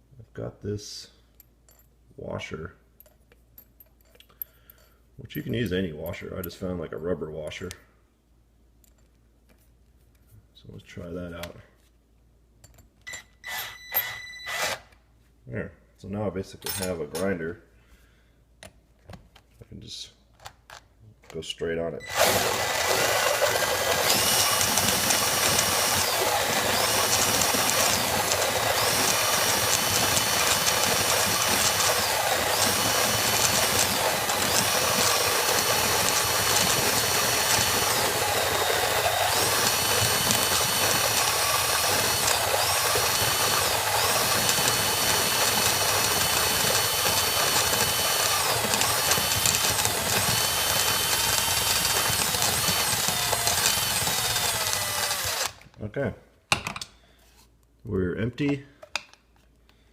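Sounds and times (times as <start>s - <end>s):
drill motor whining: 13.1s - 14.9s, 22.0s - 55.6s
burrs grinding coffee beans: 22.1s - 55.5s.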